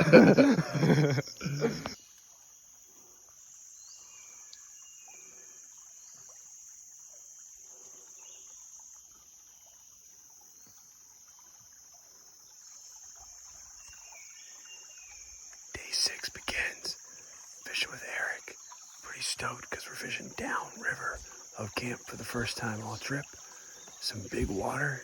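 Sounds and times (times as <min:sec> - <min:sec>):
insects droning: 0:00.0 - 0:25.0
faint bird chirps: 0:03.8 - 0:06.4, 0:12.5 - 0:25.0.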